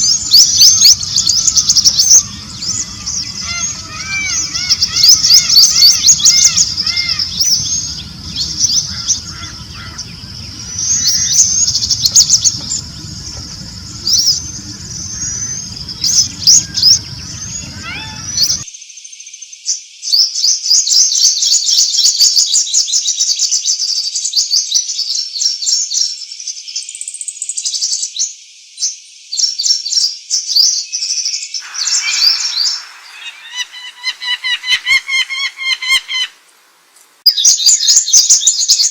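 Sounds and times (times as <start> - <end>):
low background rumble: 0.0 - 18.7
small birds chirping and twittering: 0.0 - 20.8, 28.8 - 38.9.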